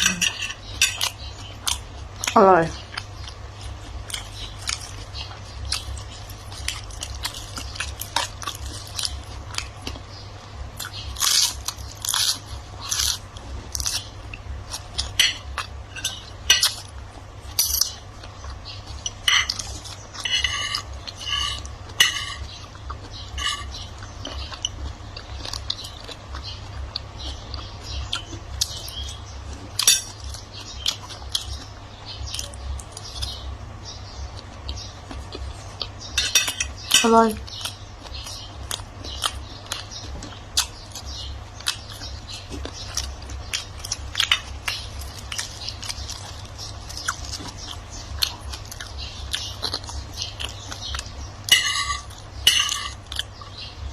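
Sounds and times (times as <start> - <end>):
chewing and crunching food: 0.0 - 53.9
steady low hum: 0.0 - 53.9.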